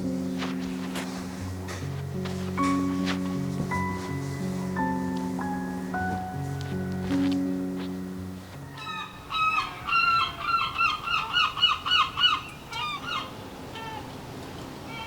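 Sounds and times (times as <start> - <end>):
background music: 0.0 - 9.6.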